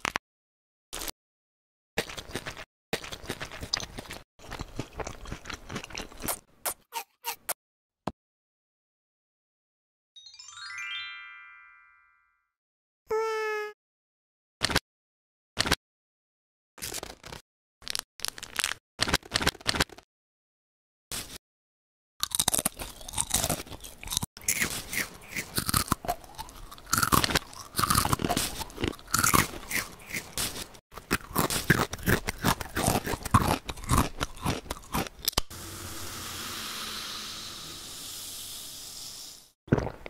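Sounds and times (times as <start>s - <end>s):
crunchy snacks being chewed: 2.0s - 6.8s, 16.8s - 20.0s, 22.2s - 35.4s.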